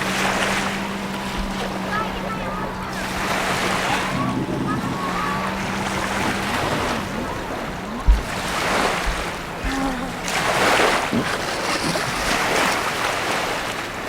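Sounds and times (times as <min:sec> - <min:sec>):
faint engine drone: 0:00.0 - 0:14.0
water rushing and splashing: 0:00.0 - 0:14.0
wind buffeting microphone: 0:00.0 - 0:14.0.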